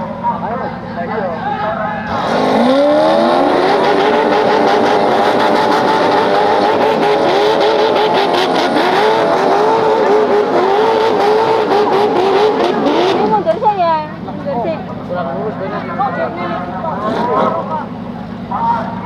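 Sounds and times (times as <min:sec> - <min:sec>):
engine revving hard: 0:02.1 - 0:13.8, 0:16.8 - 0:17.9.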